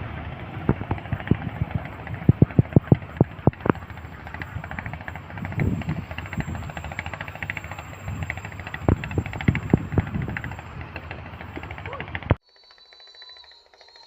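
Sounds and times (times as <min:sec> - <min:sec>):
train rolling rumble: 0:00.0 - 0:14.0
train wheels clacking: 0:00.0 - 0:14.0.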